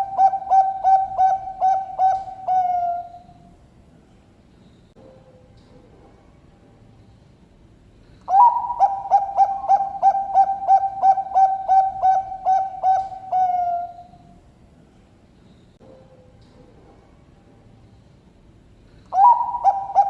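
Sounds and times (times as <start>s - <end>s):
dove cooing: 0.0s - 3.4s, 8.3s - 14.2s, 19.1s - 20.0s.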